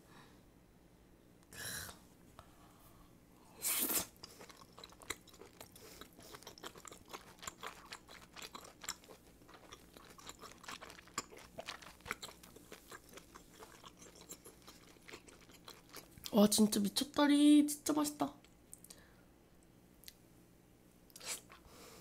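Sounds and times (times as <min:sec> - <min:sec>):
close chewing mouth clicks: 0:04.1 - 0:16.3.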